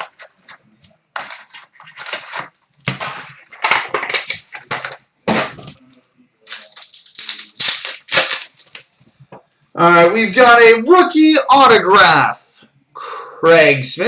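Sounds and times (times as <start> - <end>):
packaging being torn and crinkled: 1.2 - 5.0, 5.7 - 9.0.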